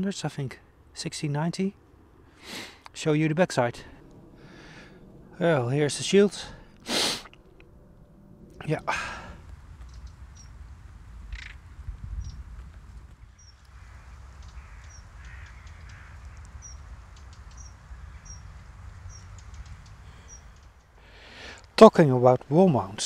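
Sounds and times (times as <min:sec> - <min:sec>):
low rumble: 0:03.3 - 0:21.4
birds calling: 0:04.0 - 0:21.8.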